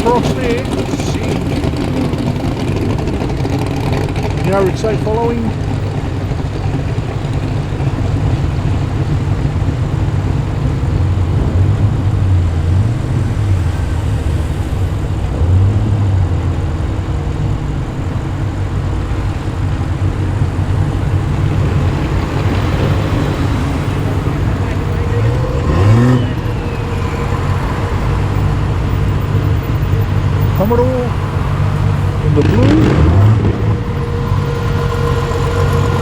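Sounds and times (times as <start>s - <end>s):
cars driving slowly past: 0.0s - 36.0s.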